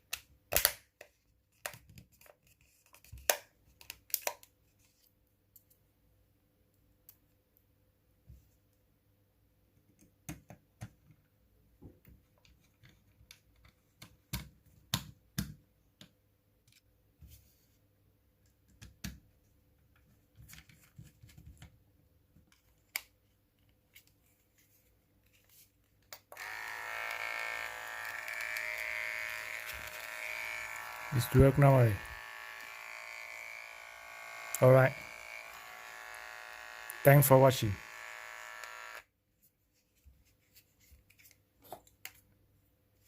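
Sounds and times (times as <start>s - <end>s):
hair clipper buzzing: 26.3s - 39.1s.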